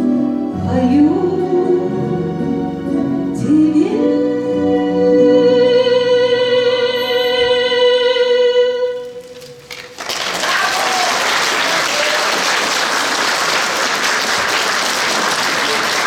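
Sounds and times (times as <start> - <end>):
woman singing a long note: 3.4 - 9.3
audience applause: 9.4 - 16.0.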